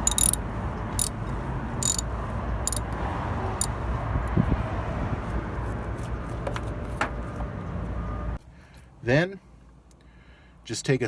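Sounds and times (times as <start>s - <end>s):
wrench metallic clicks: 0.0s - 0.4s, 1.0s - 2.0s.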